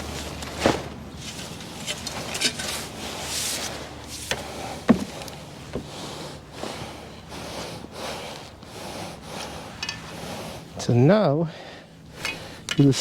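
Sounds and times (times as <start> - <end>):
rustling and handling noise: 0.0 - 6.9
knocks: 4.9 - 5.9.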